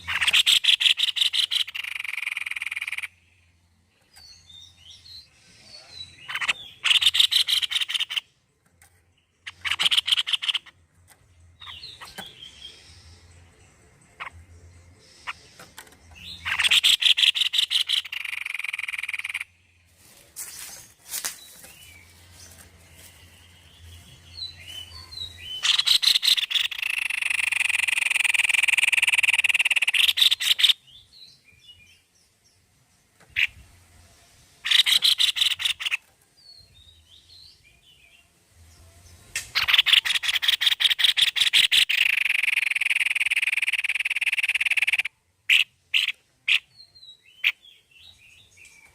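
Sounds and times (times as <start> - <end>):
faint bird chirps: 0.0 - 8.3, 9.0 - 32.2
bird song with sharp notes and trill: 0.0 - 48.9.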